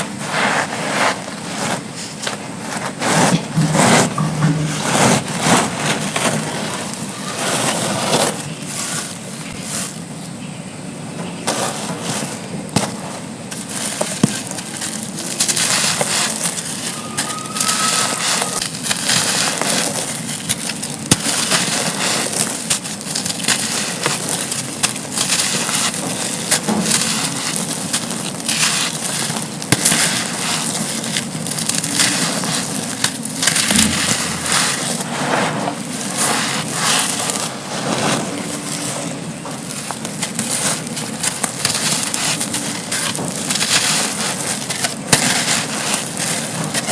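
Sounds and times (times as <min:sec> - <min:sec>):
sand slabs crumbling: 0:00.0 - 0:10.5, 0:11.2 - 0:46.9.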